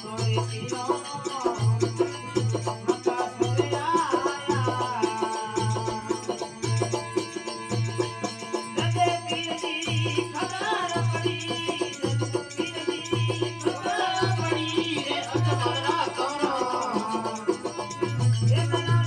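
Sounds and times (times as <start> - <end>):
hand drum beating: 0.0 - 19.0.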